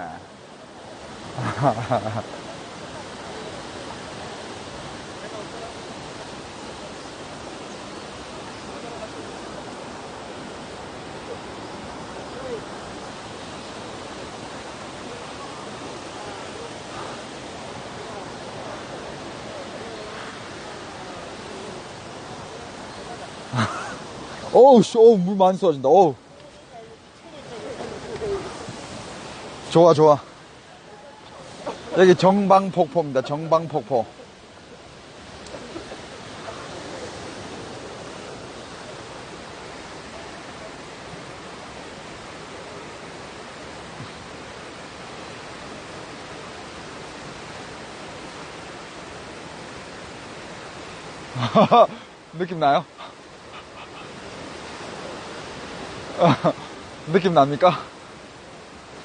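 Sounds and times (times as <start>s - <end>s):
waterfall rushing: 0.0s - 59.0s
faint voices: 2.2s - 43.1s.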